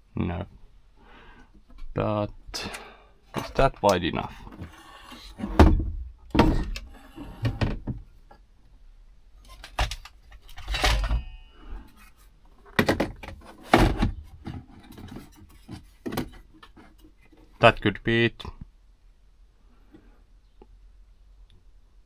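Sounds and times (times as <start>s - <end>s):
parts knocking and rattling: 3.3s - 8.1s, 9.5s - 17.6s.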